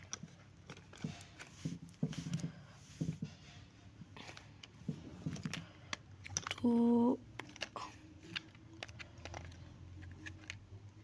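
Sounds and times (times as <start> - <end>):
plastic toy parts clicking: 4.3 - 11.0.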